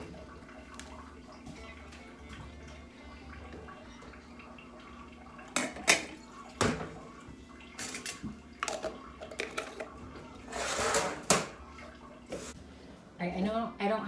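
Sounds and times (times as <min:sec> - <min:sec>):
kitchenware clanking: 0:05.5 - 0:07.1, 0:07.8 - 0:11.6.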